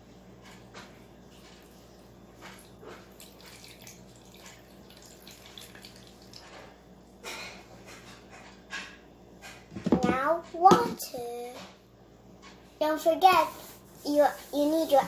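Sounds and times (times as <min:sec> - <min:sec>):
water trickling into a bowl: 0:01.6 - 0:06.6.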